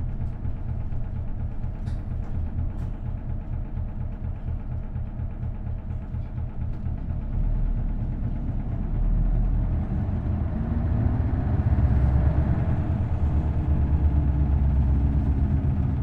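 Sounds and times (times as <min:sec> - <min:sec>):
bus diesel engine droning: 0:00.0 - 0:16.0.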